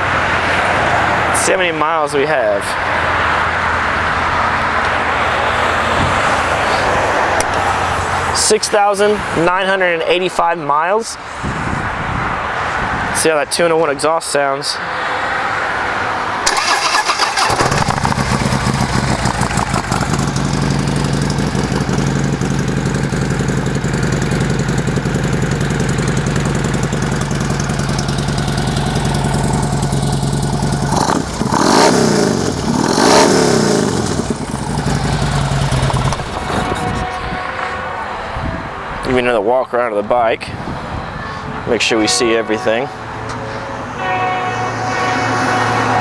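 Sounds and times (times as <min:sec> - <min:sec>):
motorcycle engine idling and revving: 0:16.4 - 0:38.2.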